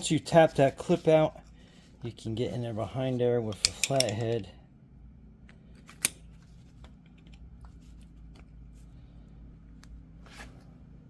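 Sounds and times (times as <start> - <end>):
faint low hum: 0.0 - 11.0
screwdriver clicking on metal: 3.5 - 4.4.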